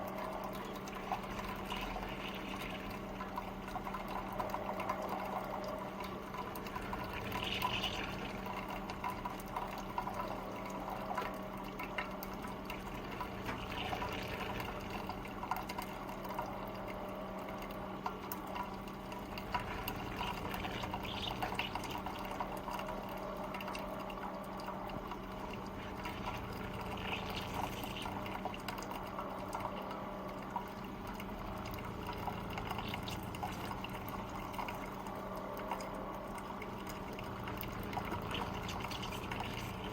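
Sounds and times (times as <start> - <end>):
coffee maker low hum: 0.0 - 39.9
water trickling and gurgling: 0.0 - 39.9.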